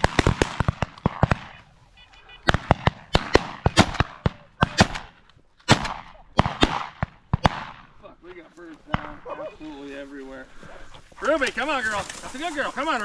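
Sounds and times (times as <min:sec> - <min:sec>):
shotgun shots with echo: 0:00.0 - 0:01.7, 0:02.4 - 0:07.9.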